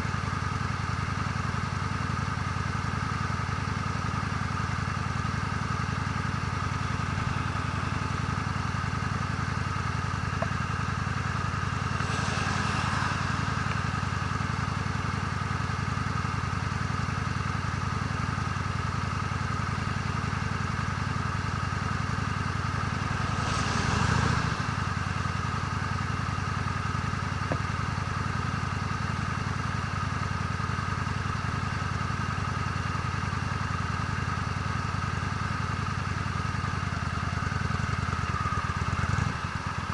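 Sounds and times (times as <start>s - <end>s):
motorcycle engine cruising: 0.0s - 39.9s
brief whoosh: 11.1s - 15.7s, 22.3s - 26.3s.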